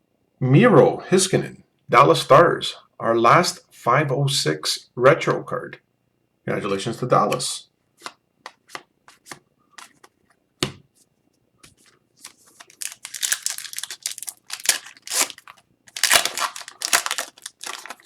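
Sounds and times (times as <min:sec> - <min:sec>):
cards clicking: 0:11.7 - 0:18.0
wrapper tearing and crinkling: 0:12.2 - 0:18.0.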